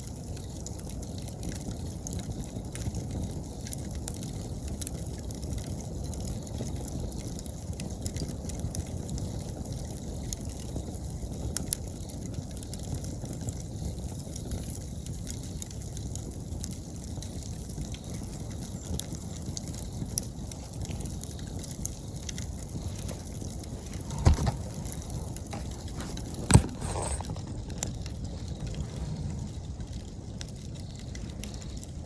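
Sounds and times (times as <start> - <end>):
campfire crackling: 0.0 - 32.0.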